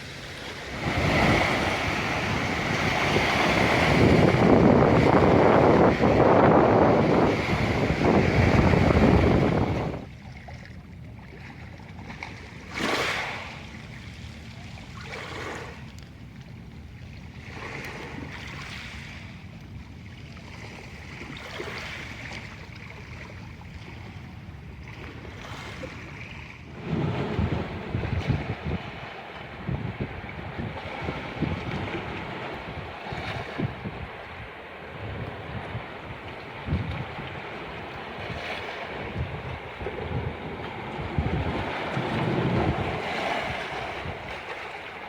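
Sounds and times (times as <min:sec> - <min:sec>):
waves surf at shore: 0:00.0 - 0:45.0.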